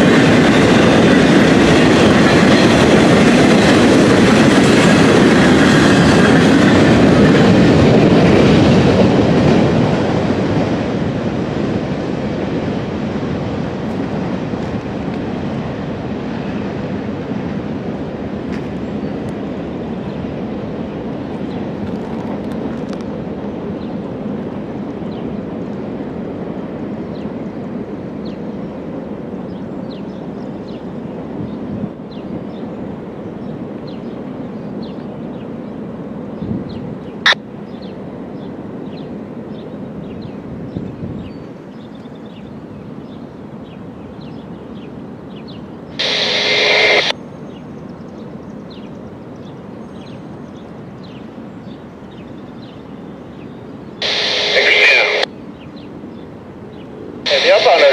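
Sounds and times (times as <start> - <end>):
outdoor background noise: 0.0 - 57.9
passing train rumble: 0.0 - 57.9
radio static: 46.0 - 47.1, 54.0 - 55.3, 57.3 - 57.9.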